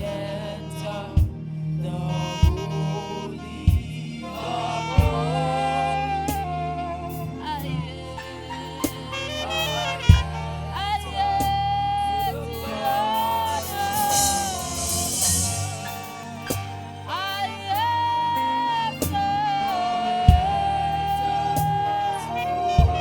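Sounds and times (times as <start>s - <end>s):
keyboard and bass backing: 0.0s - 23.0s
saxophone playing long held notes: 2.1s - 7.5s, 9.1s - 20.9s, 22.0s - 23.0s.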